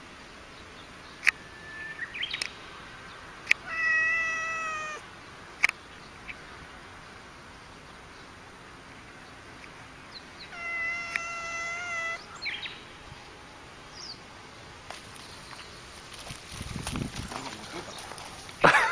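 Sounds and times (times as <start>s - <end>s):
cat meowing: 3.6s - 5.0s, 10.4s - 12.2s.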